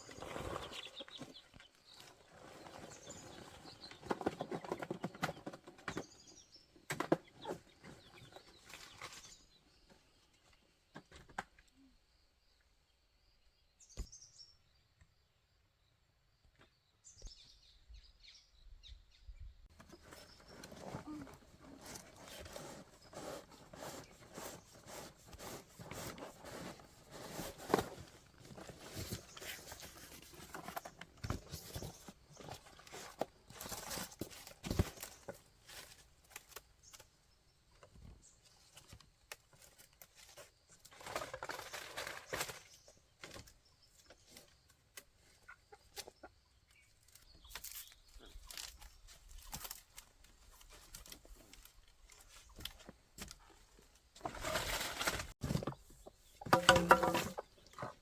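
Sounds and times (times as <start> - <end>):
rustling: 19.7 - 37.1, 47.0 - 58.0
chickens clucking: 45.2 - 46.6.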